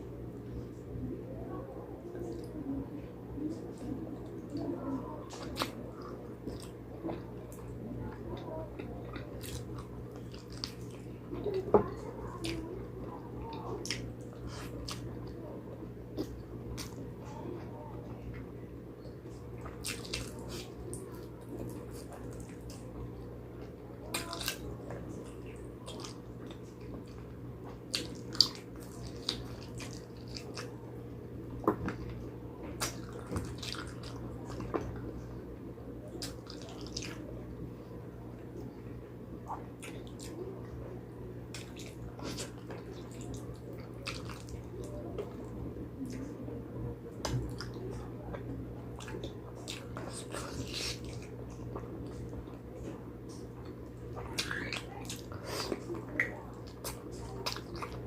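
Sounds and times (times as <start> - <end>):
steady low hum: 0.0 - 58.0
wet chewing and mouth smacks: 19.6 - 22.8, 25.9 - 30.8, 32.8 - 34.9, 36.1 - 37.2, 41.5 - 46.2, 49.0 - 58.0.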